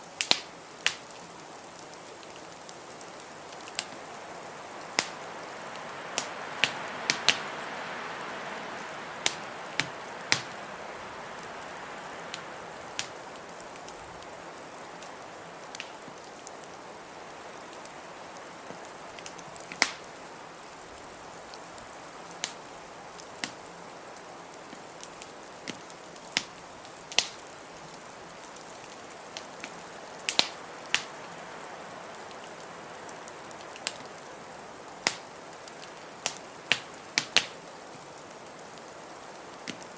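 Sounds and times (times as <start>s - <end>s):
wood fire crackling: 0.0s - 39.9s
fire pops: 0.2s - 1.1s, 3.6s - 4.1s, 4.9s - 7.6s, 9.2s - 10.6s, 12.3s - 14.0s, 15.7s - 16.2s, 18.7s - 20.1s, 24.7s - 27.4s, 29.6s - 31.1s, 35.0s - 37.6s, 39.6s - 39.9s
blizzard wind rushing: 3.4s - 15.8s.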